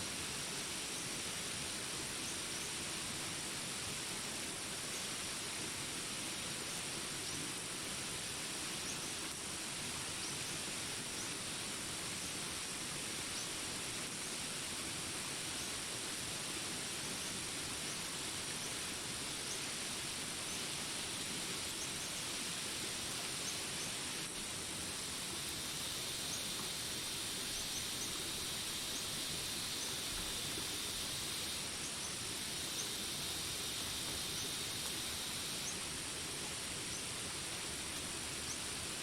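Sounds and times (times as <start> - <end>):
rain hiss: 0.0 - 39.0
high steady buzz: 24.2 - 35.8.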